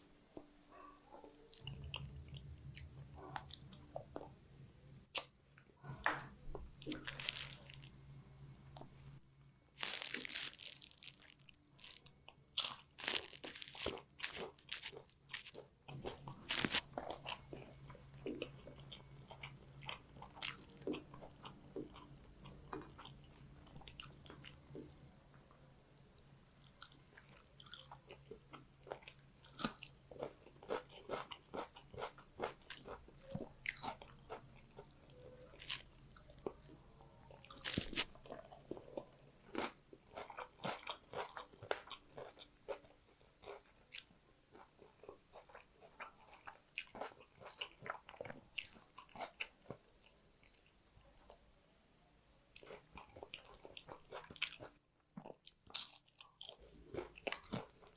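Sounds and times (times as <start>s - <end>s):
person chewing food: 0.7s - 4.4s, 6.1s - 7.9s, 9.8s - 25.2s, 26.9s - 51.4s, 52.5s - 57.9s.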